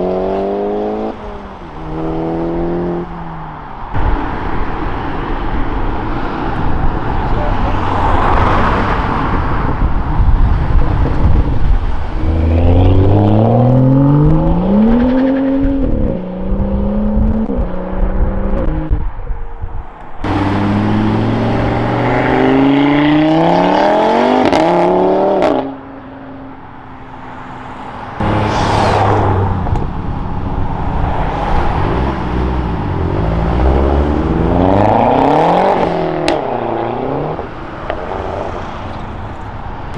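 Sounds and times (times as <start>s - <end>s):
car engines revving hard: 0.0s - 19.0s, 20.2s - 39.9s.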